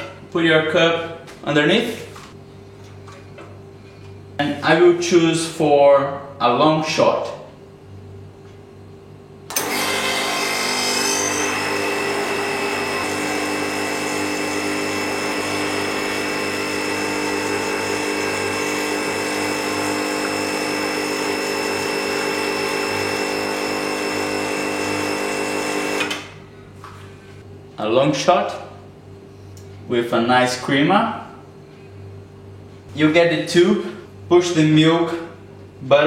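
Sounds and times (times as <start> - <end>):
espresso machine pump buzzing: 9.5 - 26.4.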